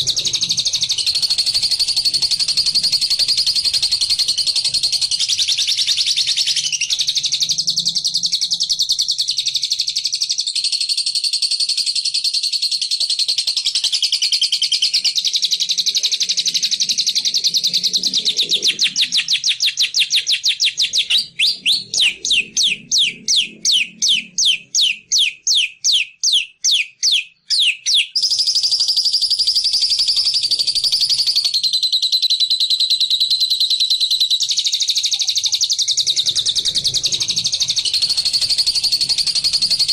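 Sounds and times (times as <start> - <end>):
songbird chattering trill: 11.7 - 39.9.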